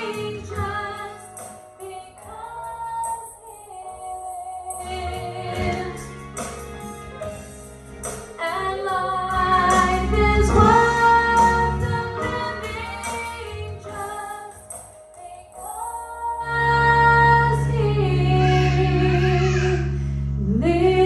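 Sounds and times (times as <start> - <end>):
women singing: 0.0 - 6.2, 8.4 - 19.6, 20.5 - 21.0
band with steady bass: 4.7 - 14.1.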